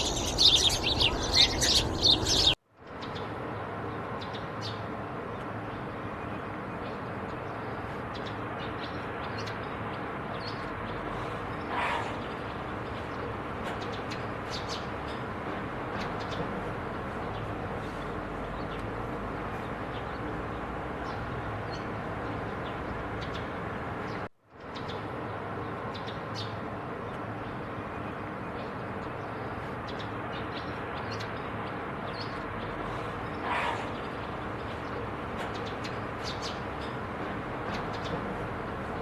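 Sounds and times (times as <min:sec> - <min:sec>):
faint high bird chirps: 0:00.0 - 0:02.6.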